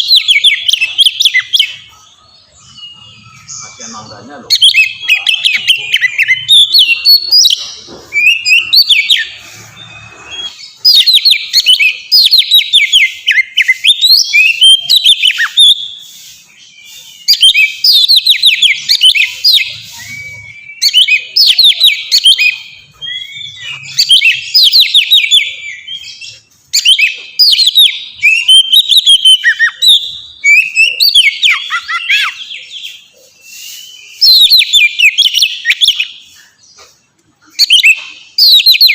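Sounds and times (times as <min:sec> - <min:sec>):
magpie-robin singing loudly: 0:00.0 - 0:36.8, 0:37.5 - 0:38.9.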